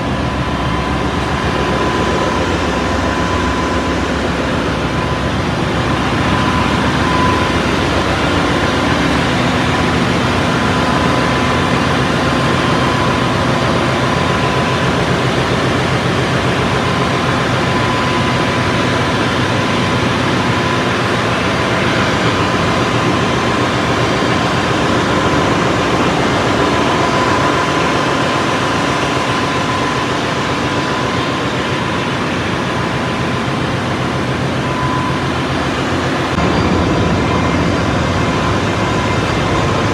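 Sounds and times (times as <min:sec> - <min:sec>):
engine-room machinery running: 0:00.0 - 0:39.9
high machinery whine: 0:00.0 - 0:39.9.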